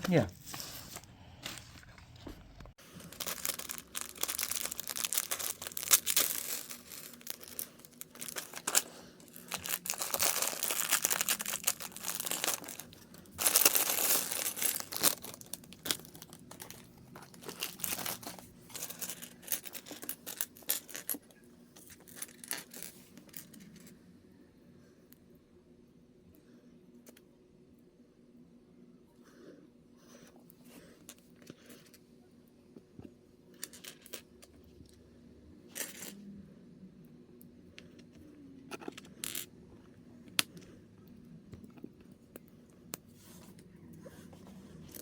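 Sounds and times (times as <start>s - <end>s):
plastic packaging crinkling and tearing: 2.8s - 21.2s.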